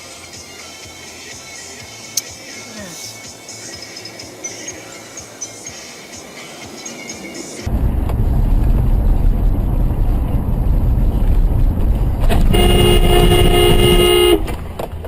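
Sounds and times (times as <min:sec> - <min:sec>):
car rumbling on road: 0:07.7 - 0:15.0
car horn long blast: 0:12.3 - 0:14.5.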